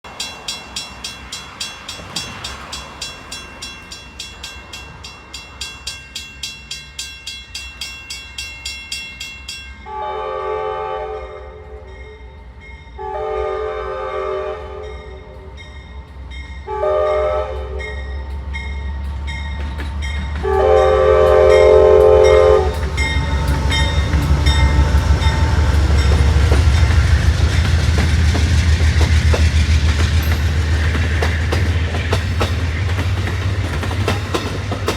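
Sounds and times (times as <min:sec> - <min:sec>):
train wheels on rails: 0:00.0 - 0:09.9, 0:11.4 - 0:34.9
train engine rumble: 0:00.0 - 0:34.9
railroad crossing bell ringing: 0:00.1 - 0:10.4, 0:11.3 - 0:13.5, 0:14.8 - 0:34.9
train horn blasts: 0:09.8 - 0:12.3, 0:13.0 - 0:15.6, 0:16.6 - 0:18.2, 0:20.4 - 0:27.5.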